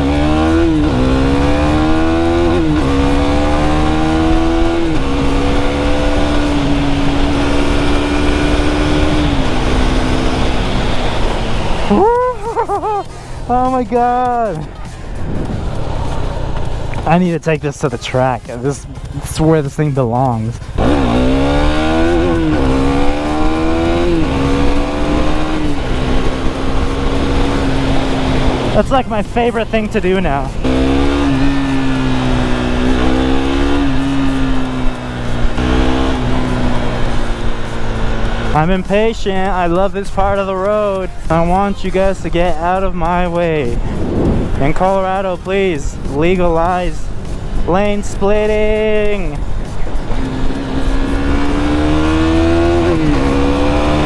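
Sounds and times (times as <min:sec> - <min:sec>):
motorcycle engine accelerating: 0:00.0 - 0:17.2, 0:20.3 - 0:54.0
wind on helmet microphone: 0:15.1 - 0:16.0, 0:43.8 - 0:44.7.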